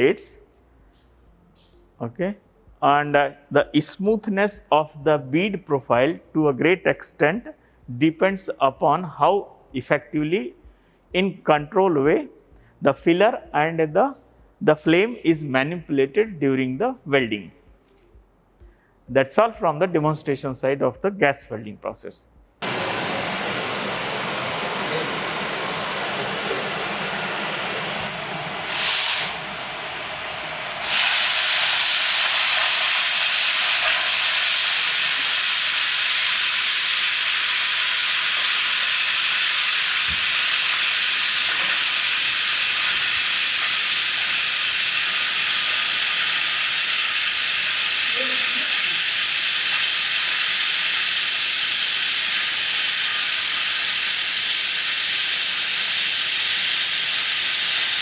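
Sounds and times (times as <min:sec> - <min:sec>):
gas torch hissing: 0:22.6 - 0:58.0
loud sharp cutting torch hiss: 0:22.6 - 0:58.0
brief puff: 0:28.6 - 0:29.6.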